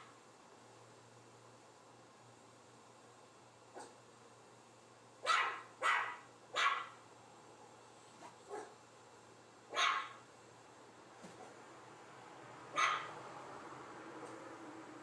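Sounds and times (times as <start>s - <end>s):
dog barking: 3.8s - 4.0s, 5.2s - 7.0s, 8.2s - 8.8s, 9.7s - 10.2s, 12.7s - 13.2s.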